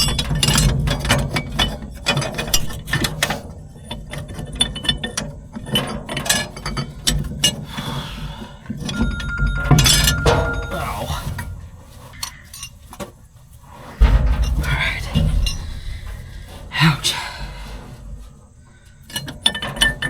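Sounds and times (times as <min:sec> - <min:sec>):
metallic clicks and clinks: 0:08.7 - 0:13.0.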